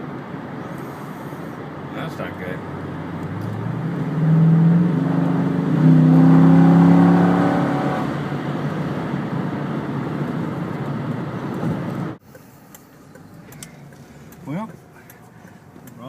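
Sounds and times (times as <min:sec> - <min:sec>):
road noise: 0:00.0 - 0:16.0
car engine accelerating: 0:01.7 - 0:12.2.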